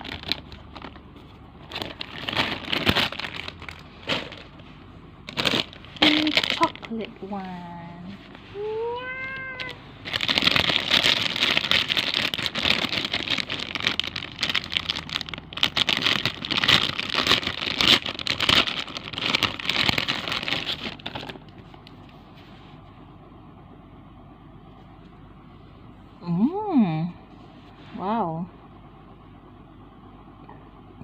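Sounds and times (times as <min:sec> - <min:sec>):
plastic packaging crinkling: 0:00.0 - 0:07.3, 0:09.2 - 0:22.1.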